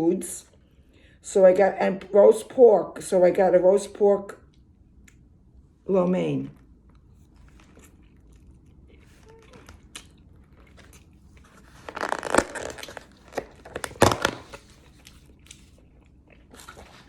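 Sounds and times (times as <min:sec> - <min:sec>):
food packaging crinkling: 0:07.2 - 0:17.0.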